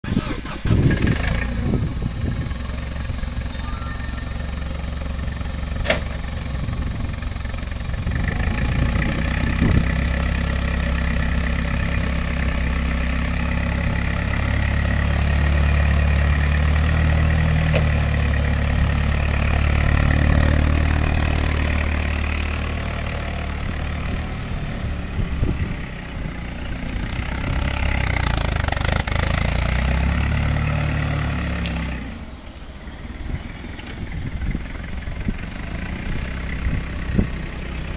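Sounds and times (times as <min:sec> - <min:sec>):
forklift engine running: 0:00.0 - 0:37.9.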